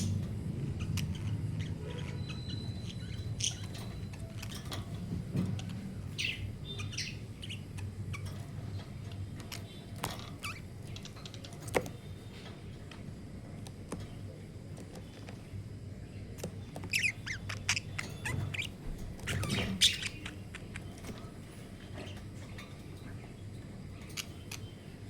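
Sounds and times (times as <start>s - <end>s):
budgerigars chirping: 0.0s - 12.4s, 16.2s - 22.5s, 23.9s - 25.0s
steady low hum: 0.0s - 25.0s.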